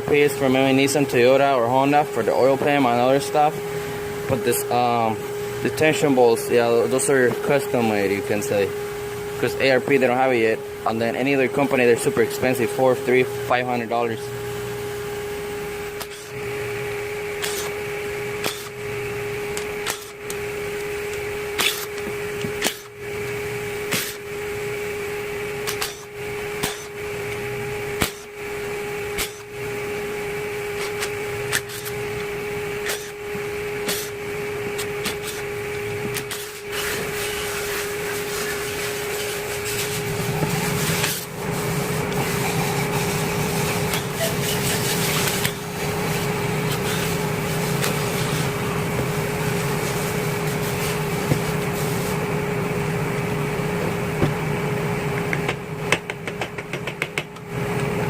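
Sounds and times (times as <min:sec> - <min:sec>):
machine hum: 0:00.0 - 0:58.0
tools clicking and knocking: 0:55.2 - 0:57.4.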